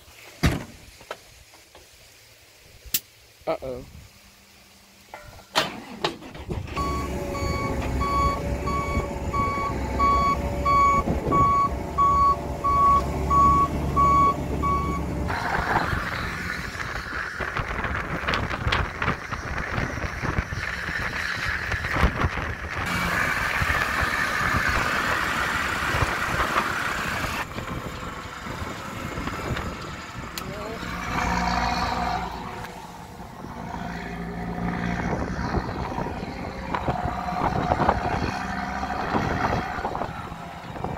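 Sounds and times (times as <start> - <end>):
diesel engine running: 5.7 - 40.9
rushing noise with crackling: 5.8 - 40.9
reversing alarm beeping: 6.8 - 15.1.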